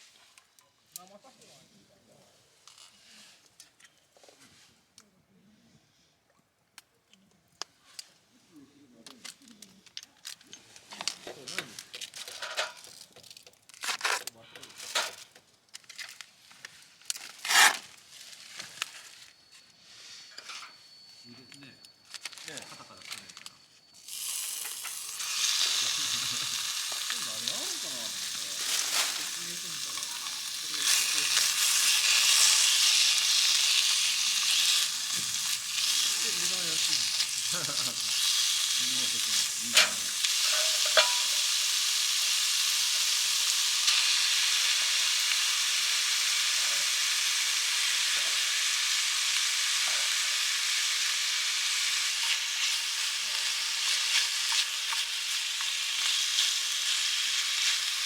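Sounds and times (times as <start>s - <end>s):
food sizzling in a pan: 23.9s - 58.0s.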